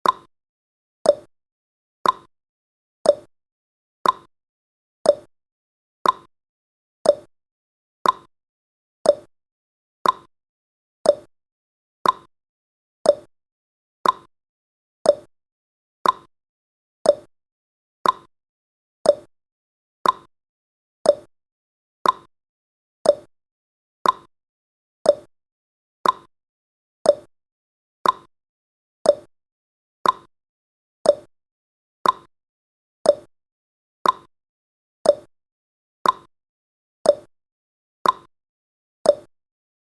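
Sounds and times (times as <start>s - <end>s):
timer ticking clicks: 0.0s - 0.3s, 1.0s - 1.3s, 2.0s - 2.3s, 3.0s - 3.3s, 4.0s - 4.3s, 5.0s - 5.3s, 6.0s - 6.3s, 7.0s - 7.3s, 8.0s - 8.3s, 9.0s - 9.3s, 10.0s - 10.3s, 11.0s - 11.3s, 12.0s - 12.3s, 13.0s - 13.3s, 14.0s - 14.3s, 15.0s - 15.3s, 16.0s - 16.3s, 17.0s - 17.3s, 18.0s - 18.3s, 19.0s - 19.3s, 20.0s - 20.3s, 21.0s - 21.3s, 22.0s - 22.3s, 23.0s - 23.3s, 24.0s - 24.3s, 25.0s - 25.3s, 26.0s - 26.3s, 27.0s - 27.3s, 28.0s - 28.3s, 29.0s - 29.3s, 30.0s - 30.3s, 31.0s - 31.3s, 32.0s - 32.3s, 33.0s - 33.3s, 34.0s - 34.3s, 35.0s - 35.3s, 36.0s - 36.3s, 37.0s - 37.3s, 38.0s - 38.3s, 39.0s - 39.3s.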